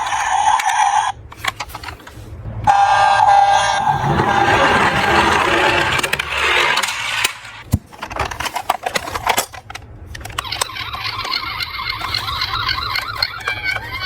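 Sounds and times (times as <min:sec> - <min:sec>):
toy cars rushing down slope: 0:02.8 - 0:07.6
metallic clicks of toy cars: 0:06.0 - 0:14.0.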